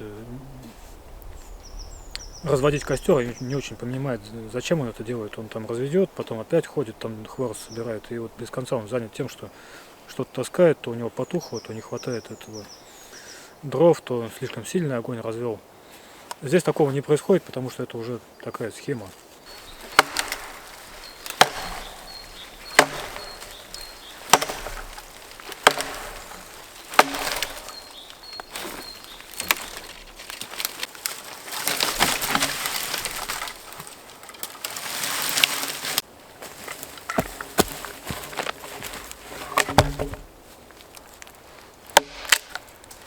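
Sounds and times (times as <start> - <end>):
rough rustling noise: 18.9 - 43.0
axe chopping wood: 19.7 - 30.7, 31.6 - 33.6, 37.1 - 40.4, 41.9 - 42.7.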